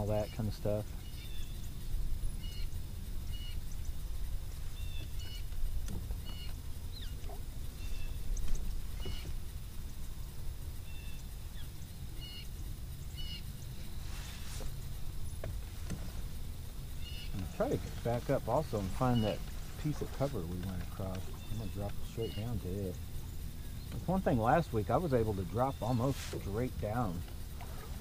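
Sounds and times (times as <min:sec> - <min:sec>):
steady low rumble: 0:00.0 - 0:28.0
high bird chirps: 0:21.0 - 0:24.5.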